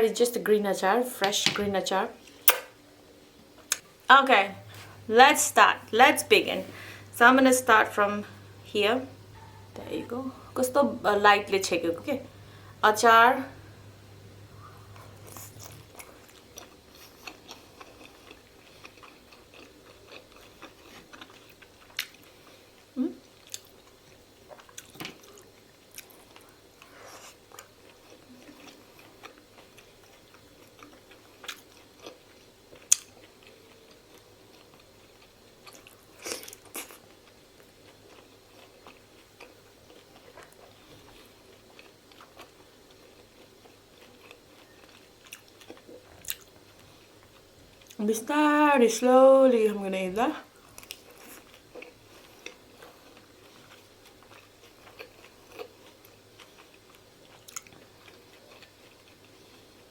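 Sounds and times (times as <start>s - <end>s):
wet chewing: 5.9s - 22.6s, 23.4s - 48.0s, 50.6s - 59.9s.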